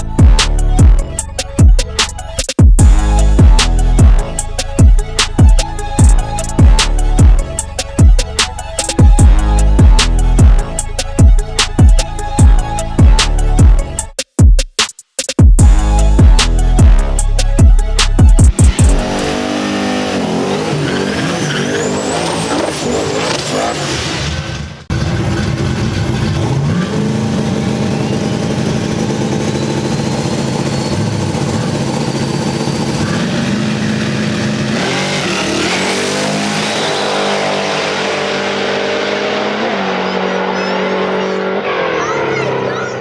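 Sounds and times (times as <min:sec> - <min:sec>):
racing engines revving: 0:18.0 - 0:43.0.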